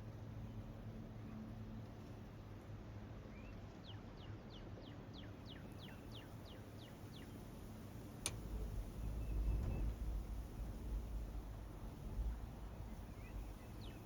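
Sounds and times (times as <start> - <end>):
songbird whistling: 13.1 - 14.0.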